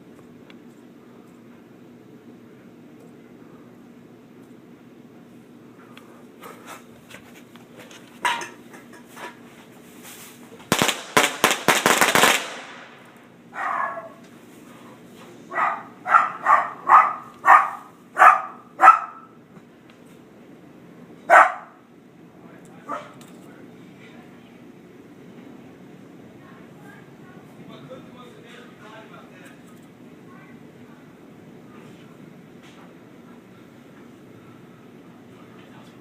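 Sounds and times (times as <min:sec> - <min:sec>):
firecrackers cracking: 0:10.6 - 0:13.4
dog barking: 0:13.5 - 0:14.2, 0:15.5 - 0:19.4, 0:21.3 - 0:21.8, 0:22.9 - 0:23.2.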